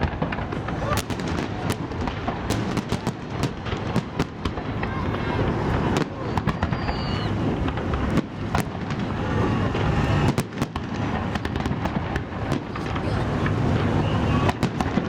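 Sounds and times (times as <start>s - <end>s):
firework cracks and pops: 0.0s - 15.0s
rumble of firework bursts: 0.0s - 15.0s.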